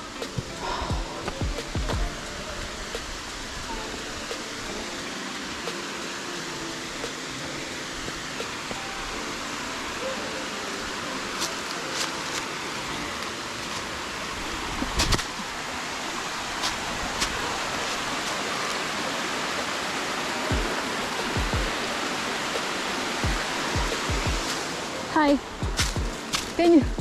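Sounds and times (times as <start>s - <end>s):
rushing river water: 0.0s - 27.0s
low thumps: 25.5s - 27.0s.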